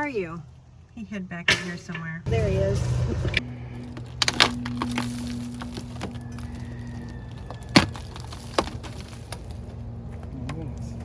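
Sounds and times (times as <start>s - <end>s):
steady low hum: 0.0s - 11.0s
wood cracking and knocking: 3.8s - 10.3s.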